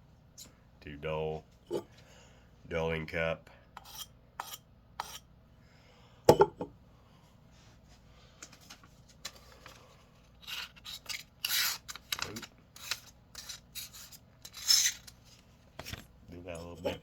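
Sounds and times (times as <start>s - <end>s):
knife scraping cup rim: 3.8s - 5.2s, 10.4s - 11.9s, 12.8s - 15.1s.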